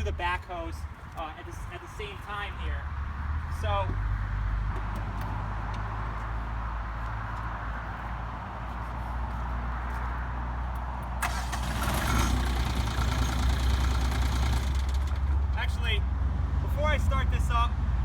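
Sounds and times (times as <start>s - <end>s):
tractor diesel engine running: 11.2s - 15.9s.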